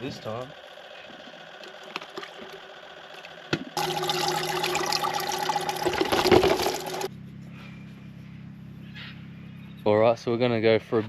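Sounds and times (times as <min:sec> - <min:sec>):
steady hum: 0:00.1 - 0:09.6
water pouring and splashing: 0:03.8 - 0:07.1.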